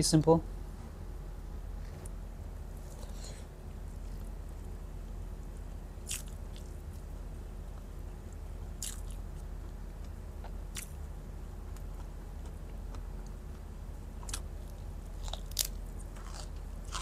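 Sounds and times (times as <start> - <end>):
steady low hum: 0.0 - 17.0
person chewing food: 6.0 - 7.1, 8.8 - 11.0, 11.7 - 17.0.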